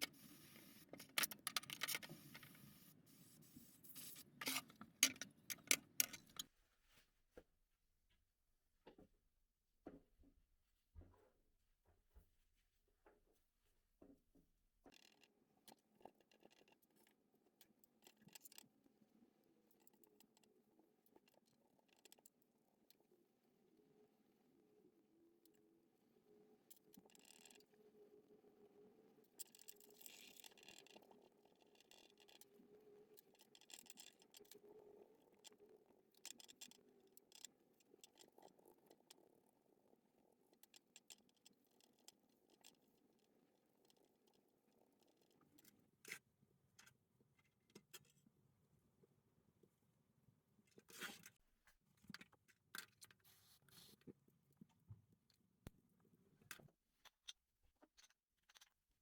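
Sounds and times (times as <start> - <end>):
faint scratching: 0.0 - 7.0
faint light clicks and scratches: 0.0 - 7.5, 10.9 - 19.0, 19.6 - 23.1, 26.5 - 27.9, 29.2 - 48.4, 50.6 - 59.0.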